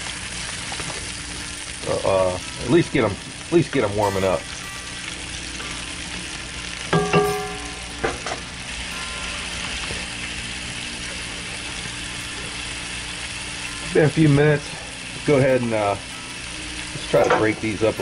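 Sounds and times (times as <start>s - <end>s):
vegetables sizzling in hot oil: 0.0s - 18.0s
ringing knock: 6.9s - 8.4s.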